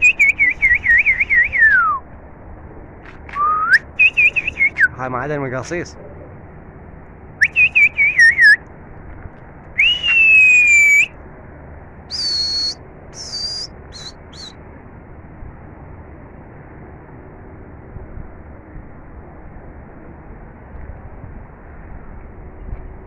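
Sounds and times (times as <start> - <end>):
person whistling: 3.4 - 4.9, 7.4 - 8.6, 9.8 - 11.1, 12.1 - 14.1.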